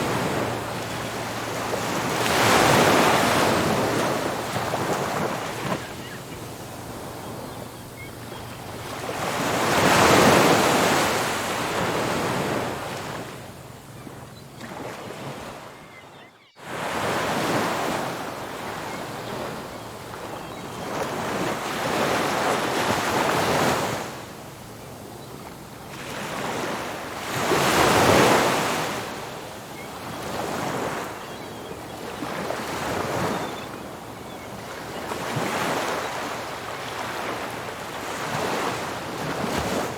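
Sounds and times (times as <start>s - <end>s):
waves breaking on beach: 0.0s - 13.5s, 32.1s - 39.9s.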